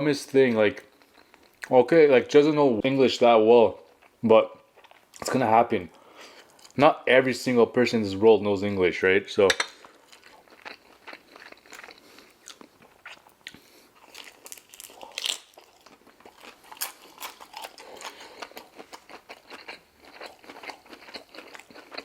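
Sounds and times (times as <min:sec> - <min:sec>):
person chewing crunchy food: 0:00.5 - 0:01.7, 0:03.8 - 0:05.4, 0:09.7 - 0:22.0.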